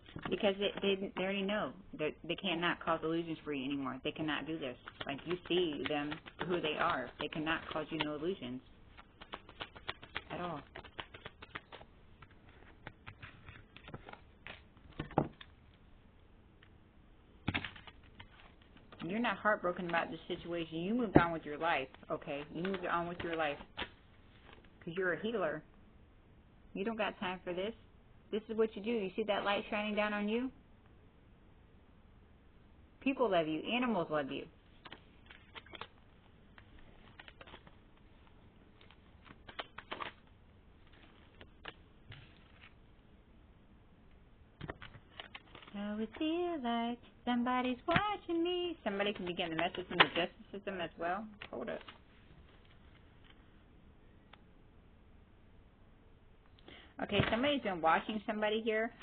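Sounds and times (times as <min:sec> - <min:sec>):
cards clicking and tapping: 0:04.8 - 0:08.3, 0:08.9 - 0:15.5, 0:17.4 - 0:19.2, 0:21.1 - 0:24.0, 0:38.8 - 0:40.2.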